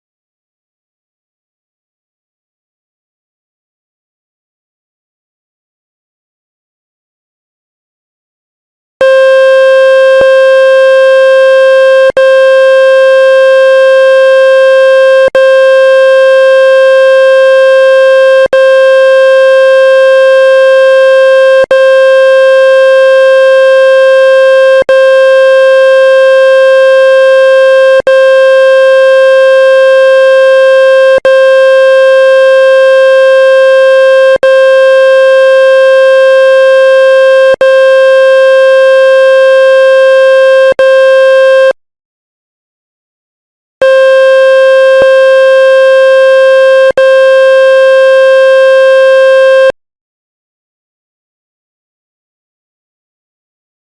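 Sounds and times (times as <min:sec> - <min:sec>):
loud electronic buzz tone: 0:09.0 - 0:41.8, 0:43.8 - 0:49.8.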